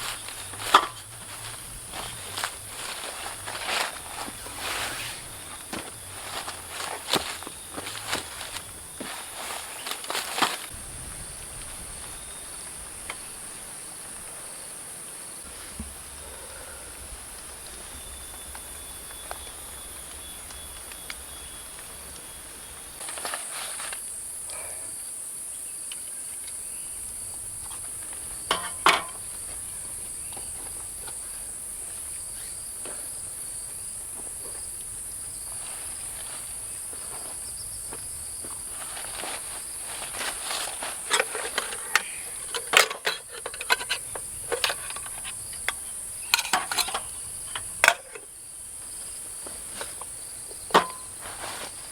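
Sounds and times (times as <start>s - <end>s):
knocks and rustles: 0.0s - 12.0s, 27.6s - 29.6s, 49.4s - 51.9s
insects trilling: 0.0s - 51.9s.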